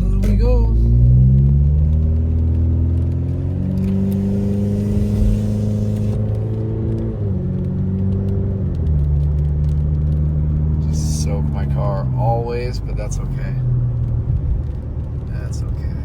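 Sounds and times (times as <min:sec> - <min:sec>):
car engine accelerating: 0:00.0 - 0:16.0
hiss: 0:04.6 - 0:06.2.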